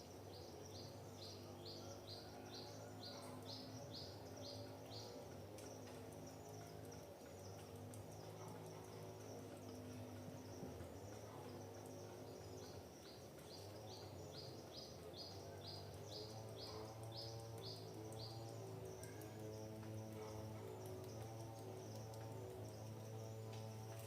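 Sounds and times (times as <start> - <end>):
high insect drone: 0.0 - 24.0
low humming tones: 0.1 - 24.0.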